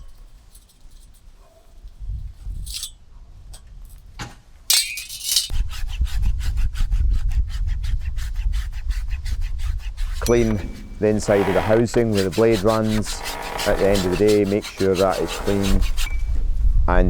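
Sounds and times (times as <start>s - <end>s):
sharp scrape: 5.5s - 16.6s
rapid scrubbing strokes: 8.0s - 16.6s.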